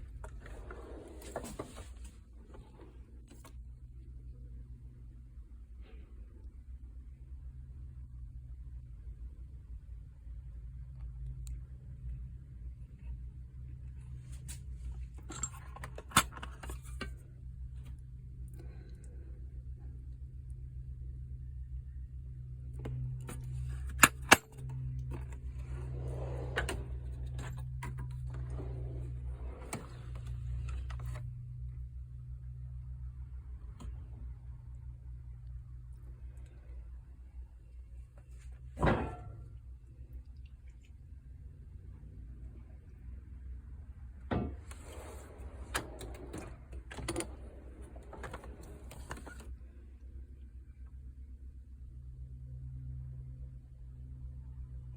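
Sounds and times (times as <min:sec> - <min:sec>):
steady low hum: 0:00.0 - 0:41.8.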